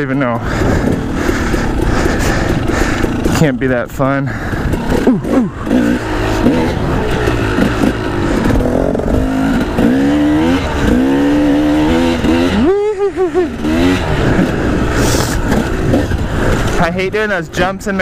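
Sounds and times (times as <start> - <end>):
two-stroke dirt bike engine revving: 0.0 - 18.0.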